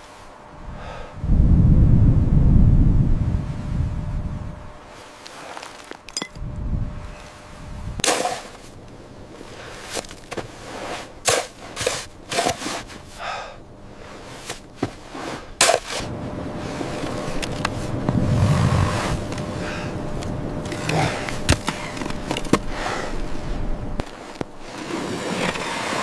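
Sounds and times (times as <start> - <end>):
steady rushing noise: 0.2 - 5.1, 6.3 - 9.7, 15.0 - 26.0.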